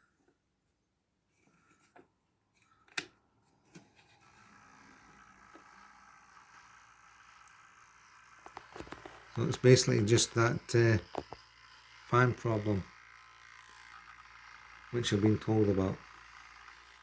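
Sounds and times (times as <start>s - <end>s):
small electric motor whine: 3.7s - 17.0s.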